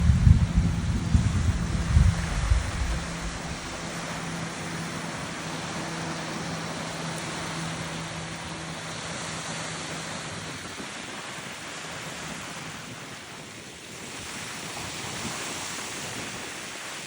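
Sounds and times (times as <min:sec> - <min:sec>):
low hum: 0:00.0 - 0:10.6
rushing air or water: 0:00.0 - 0:17.0.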